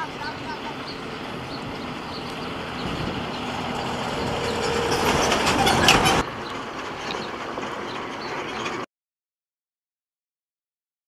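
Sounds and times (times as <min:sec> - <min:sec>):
train rumbling on rails: 0:00.0 - 0:08.9
wheel clacks over rail joints: 0:01.6 - 0:08.9.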